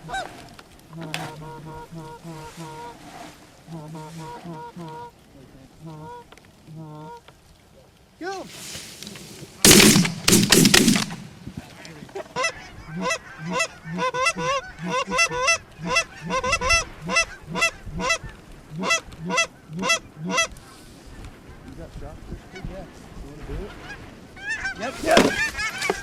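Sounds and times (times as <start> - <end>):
geese honking: 0.0 - 5.2, 11.9 - 21.7, 23.6 - 26.0
shotgun blasts: 9.6 - 11.5.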